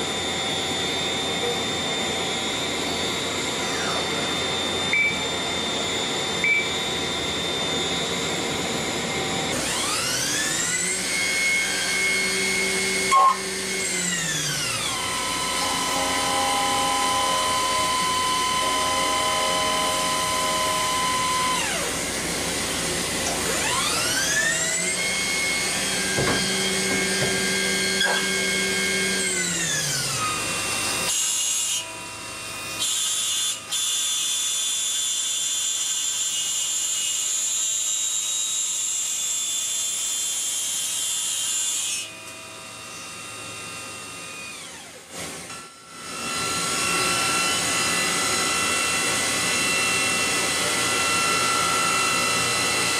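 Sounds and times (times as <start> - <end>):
machine spindle whining: 0.0 - 31.2.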